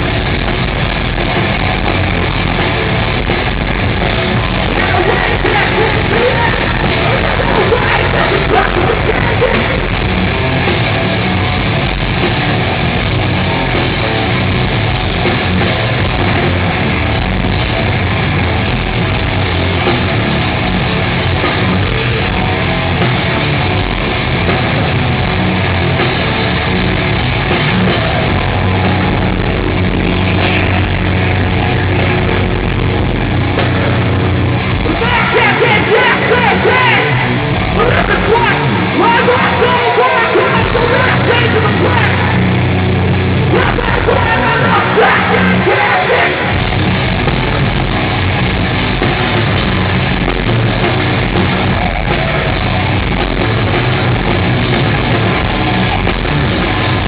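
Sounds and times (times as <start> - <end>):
heavy rock band playing live: 0.0 - 57.0
person yelling vocals: 4.8 - 9.8, 34.8 - 42.4, 43.5 - 46.6.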